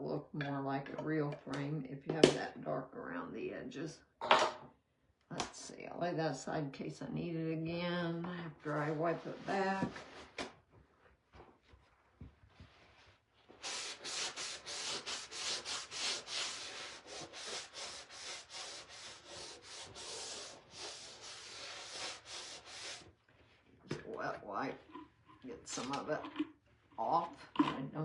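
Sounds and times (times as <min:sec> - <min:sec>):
rubbing strokes on wooden frame: 0:13.0 - 0:23.1.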